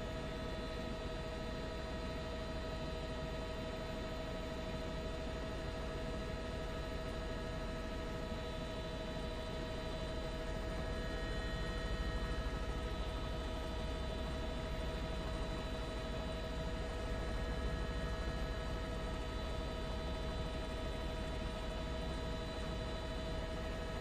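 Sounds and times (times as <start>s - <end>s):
helicopter engine and rotor: 0.0s - 24.0s.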